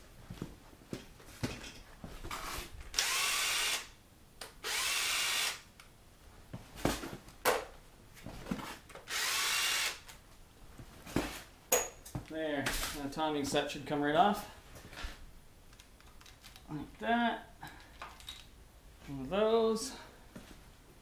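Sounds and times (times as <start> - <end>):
cordless power tool whirring: 2.3 - 3.9, 4.6 - 5.6, 9.1 - 10.0.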